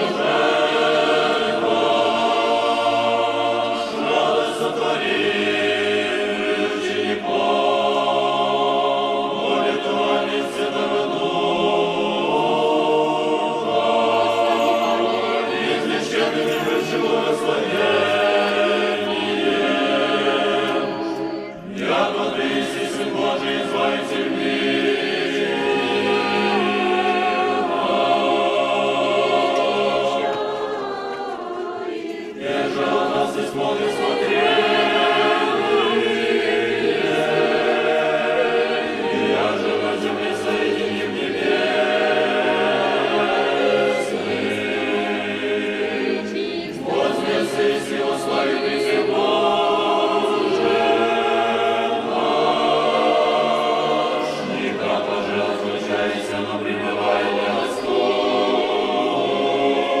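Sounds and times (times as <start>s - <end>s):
church choir singing hymn: 0.0s - 60.0s.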